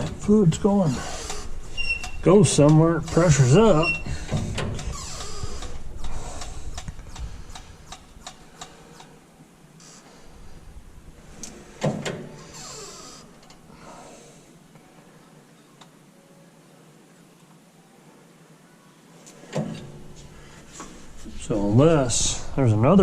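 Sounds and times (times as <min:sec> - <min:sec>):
light clicks and knocks of tools: 0:04.3 - 0:09.2.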